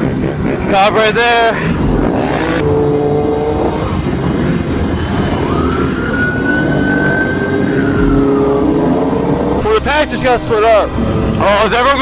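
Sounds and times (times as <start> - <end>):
motorbike engines running: 0.0 - 12.0
police siren wailing: 2.6 - 12.0.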